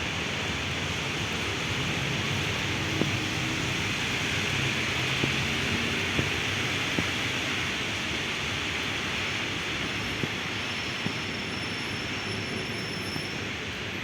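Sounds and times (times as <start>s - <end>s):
heavy rain hissing: 0.0s - 14.0s
sharp taps of raindrops: 2.3s - 8.2s, 9.6s - 11.3s
sharp taps: 2.9s - 3.6s, 5.2s - 7.2s.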